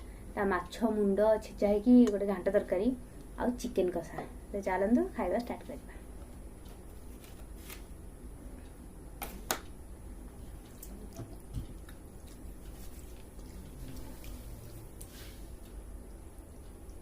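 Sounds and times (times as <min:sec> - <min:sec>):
wet rice squishing in a bowl: 0:10.7 - 0:15.8.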